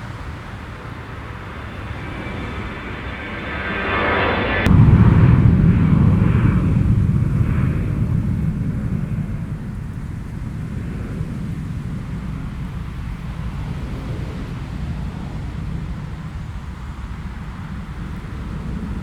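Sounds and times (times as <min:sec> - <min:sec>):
high engine whine: 0:00.0 - 0:19.0
jet engines roaring: 0:00.0 - 0:19.0.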